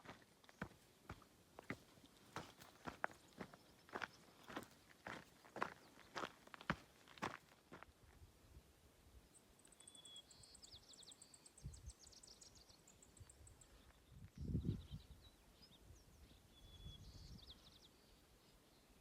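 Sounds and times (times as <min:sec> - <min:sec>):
songbird trilling and chirping: 0:09.4 - 0:18.2.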